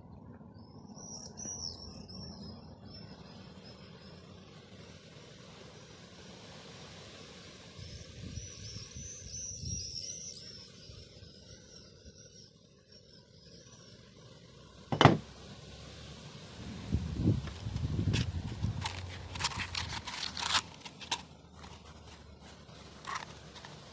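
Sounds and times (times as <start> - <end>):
sharp knock: 14.9 - 15.2.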